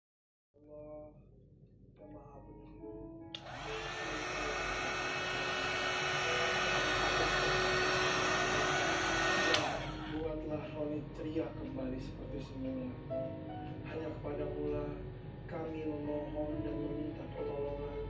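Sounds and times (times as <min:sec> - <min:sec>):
soft music: 0:00.6 - 0:18.0
hair dryer switch click: 0:03.4 - 0:10.1
hair dryer blowing with whine: 0:03.4 - 0:10.3.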